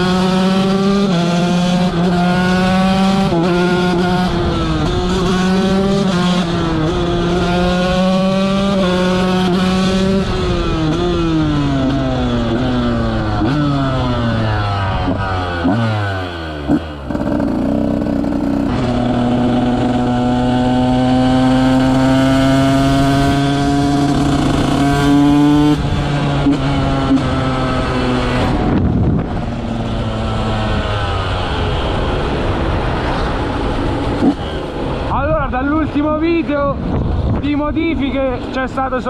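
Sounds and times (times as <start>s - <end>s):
motocross bike engine revving: 0.0s - 35.7s.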